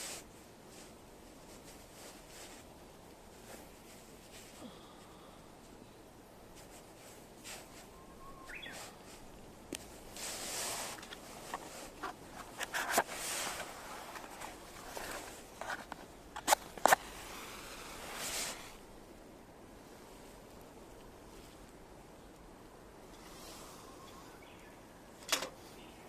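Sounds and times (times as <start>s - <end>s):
rustling handling noise: 0.0s - 5.0s, 6.5s - 19.0s
light clicks and knocks: 25.2s - 25.6s.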